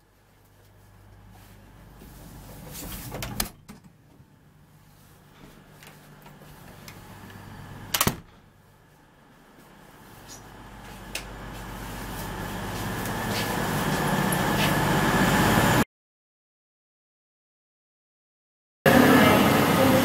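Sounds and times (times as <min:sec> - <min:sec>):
train interior rumble and hiss: 0:00.2 - 0:03.2, 0:04.4 - 0:15.8, 0:18.9 - 0:20.0.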